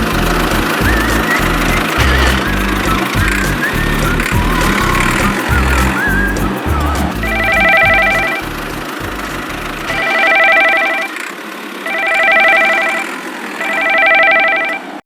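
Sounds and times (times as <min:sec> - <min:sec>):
telephone ringing: 0:09.9 - 0:11.2, 0:11.9 - 0:14.9.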